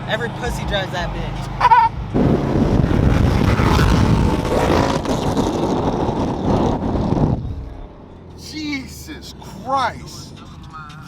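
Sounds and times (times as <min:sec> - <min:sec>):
car exhaust accelerating hard: 0:00.6 - 0:08.1.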